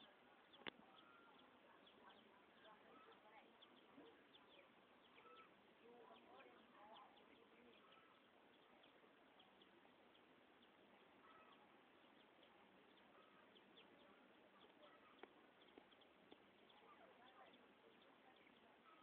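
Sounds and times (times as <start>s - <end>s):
bird chirps: 0.0s - 19.0s.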